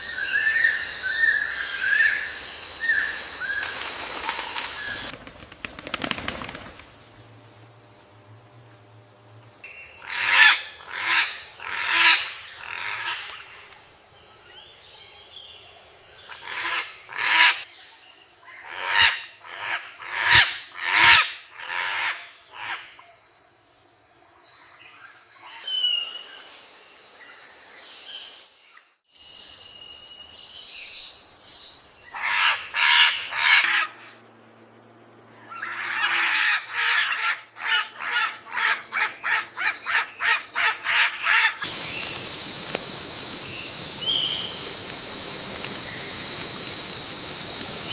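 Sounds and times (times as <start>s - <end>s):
steady high-pitched whine: 0.0s - 5.2s
birds giving harsh calls: 35.4s - 42.5s.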